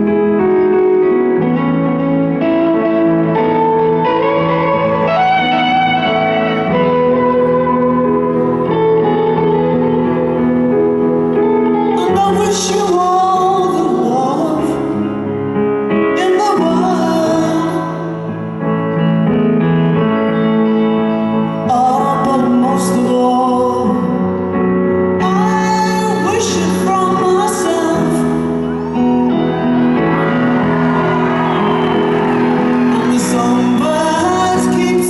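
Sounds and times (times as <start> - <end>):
guitar: 0.0 - 35.0
piano chords: 0.0 - 35.0
woman singing ballad: 11.8 - 15.1, 16.1 - 18.1, 21.6 - 24.1, 25.2 - 28.7, 32.9 - 35.0.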